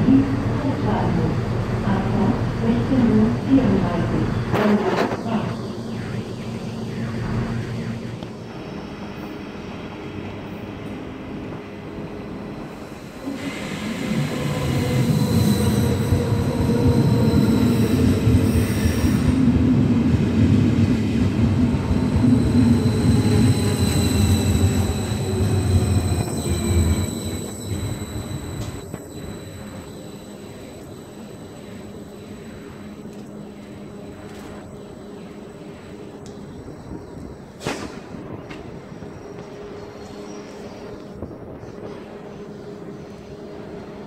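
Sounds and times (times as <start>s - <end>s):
train rumbling into platform: 0.0s - 44.0s
thin high whine: 21.8s - 37.6s.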